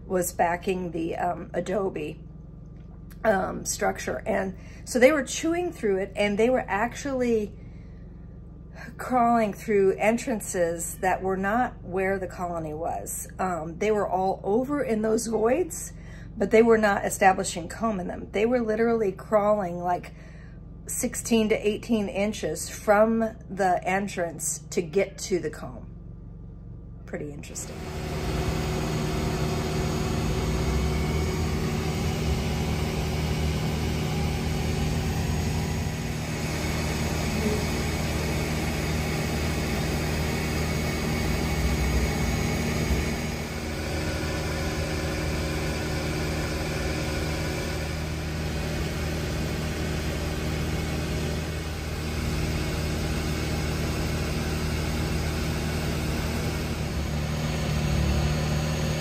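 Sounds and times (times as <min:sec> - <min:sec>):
motor humming: 0:25.9 - 0:59.0.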